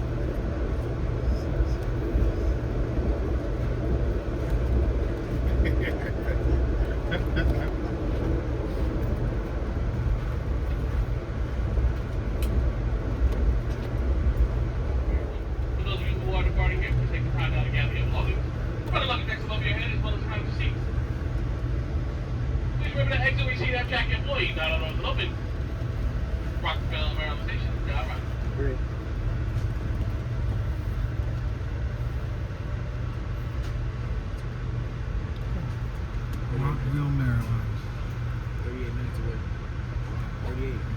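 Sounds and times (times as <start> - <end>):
train rumbling on track: 0.0 - 40.9.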